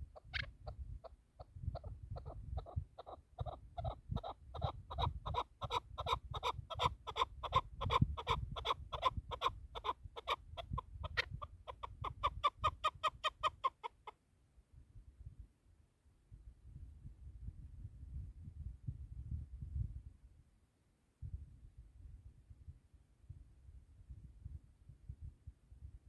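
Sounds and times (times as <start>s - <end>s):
partridge clucking calls: 0.1s - 14.1s.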